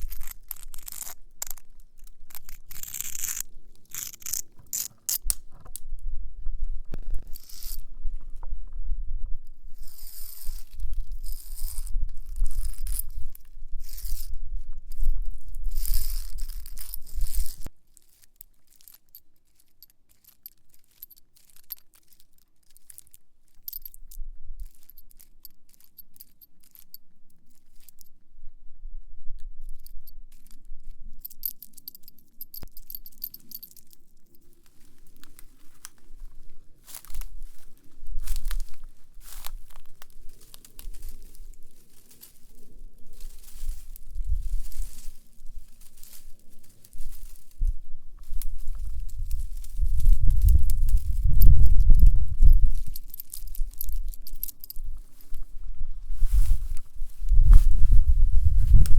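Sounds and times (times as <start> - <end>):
nail scratching a spiny leaf: 0.0 - 5.4, 9.8 - 14.4
nail scratching along a wall: 0.0 - 5.4.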